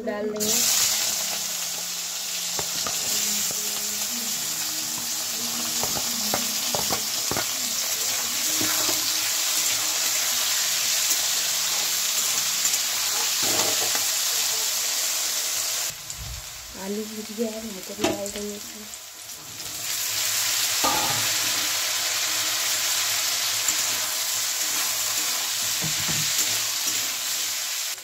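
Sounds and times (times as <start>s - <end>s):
potatoes sizzling in hot oil: 0.0s - 28.0s
metal spatula clinking and scraping: 20.8s - 22.4s, 23.5s - 27.2s.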